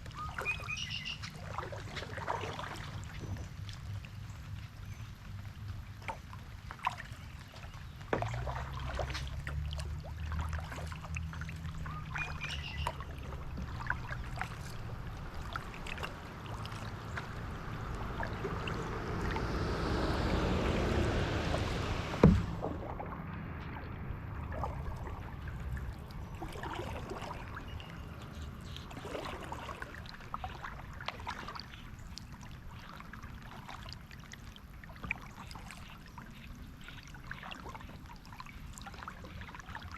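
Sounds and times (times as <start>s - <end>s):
water splashing off paddle: 0.0s - 3.8s, 6.0s - 39.9s
paddle knocking kayak: 8.0s - 39.9s
low rumble: 12.8s - 28.9s.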